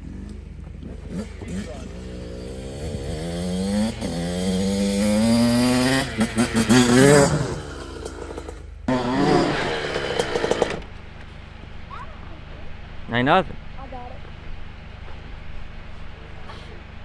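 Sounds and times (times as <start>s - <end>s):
dirt bike engine revving: 0.0s - 11.8s.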